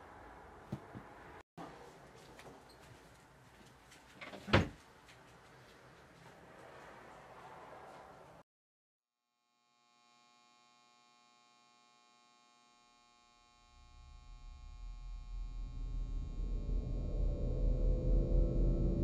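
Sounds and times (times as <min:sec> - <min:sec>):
deep low rumble: 0:13.8 - 0:19.0.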